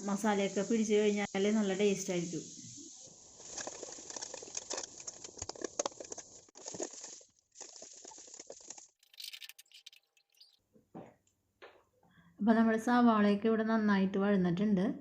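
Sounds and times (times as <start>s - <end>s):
onions sizzling in hot oil: 0.0s - 8.7s.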